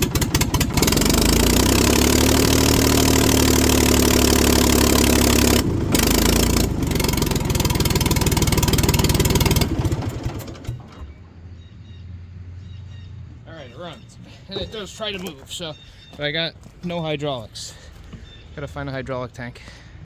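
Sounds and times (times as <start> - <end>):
diesel engine cranking and running: 0.0 - 11.6.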